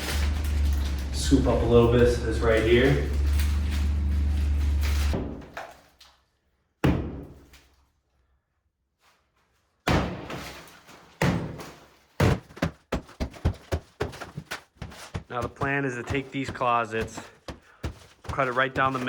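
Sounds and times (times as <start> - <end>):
heavy thuds: 12.2 - 19.0.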